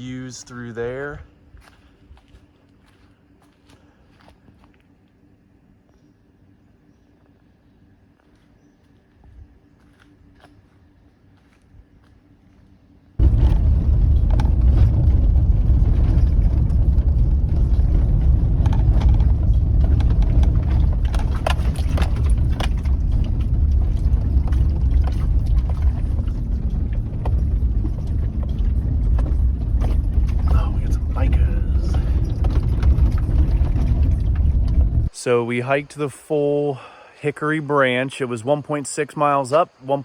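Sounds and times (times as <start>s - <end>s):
tyres crunching on gravel: 0.0s - 5.2s, 8.2s - 35.2s
truck engine rumble: 13.2s - 36.0s.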